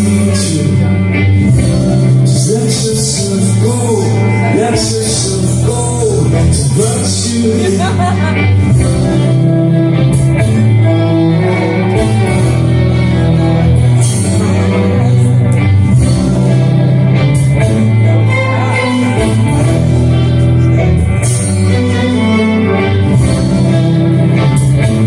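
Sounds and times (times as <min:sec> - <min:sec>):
bass line: 0:00.0 - 0:25.0
live band music: 0:00.0 - 0:25.0.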